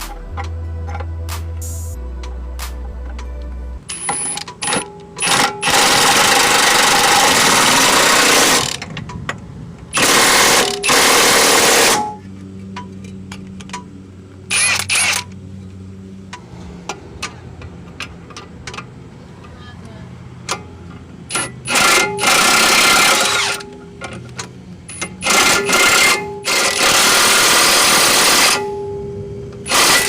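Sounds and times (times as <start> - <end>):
quiet background music: 0.0 - 5.2
impact wrench running: 3.9 - 8.9, 9.9 - 12.2, 14.5 - 15.4, 20.5 - 28.8, 29.6 - 30.0
ratchet-like clicks: 14.5 - 15.4, 21.3 - 28.6.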